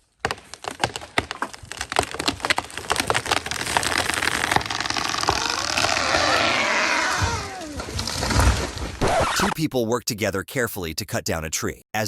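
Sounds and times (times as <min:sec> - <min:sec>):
wood cracking and splintering: 0:00.0 - 0:09.5.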